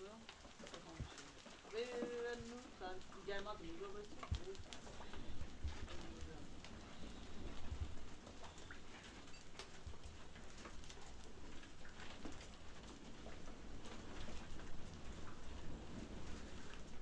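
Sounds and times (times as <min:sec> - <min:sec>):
drops pattering: 0:00.0 - 0:11.5
rain falling: 0:00.0 - 0:17.0.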